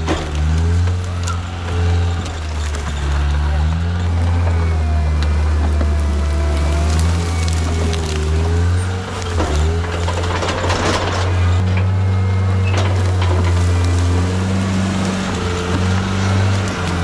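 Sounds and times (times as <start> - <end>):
sharp knocks and cracks: 0.0 - 3.4, 5.2 - 12.0
diesel engine running: 0.0 - 17.0.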